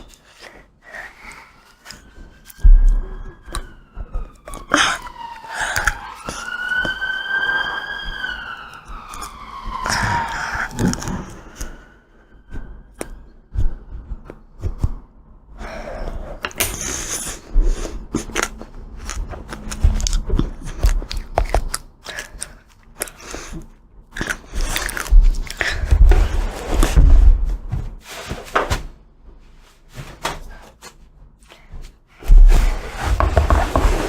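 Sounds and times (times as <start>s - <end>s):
emergency vehicle siren: 0.1s - 16.2s, 16.9s - 23.6s
crunching and chewing ice cream: 16.8s - 26.1s.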